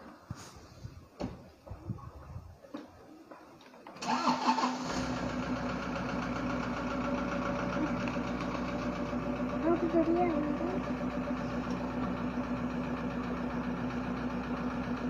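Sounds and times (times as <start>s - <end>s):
car engine starting and idling: 4.0s - 15.0s.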